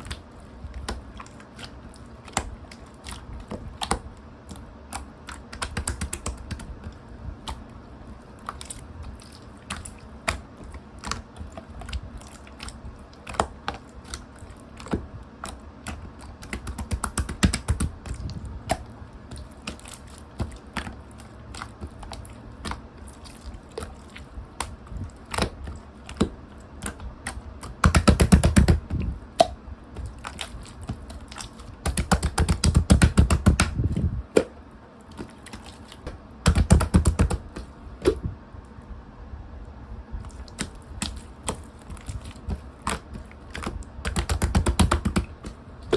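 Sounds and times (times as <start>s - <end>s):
slime squished by hand: 0.0s - 38.3s, 40.2s - 45.9s
rapid crackling pops: 31.8s - 33.9s, 44.0s - 45.9s.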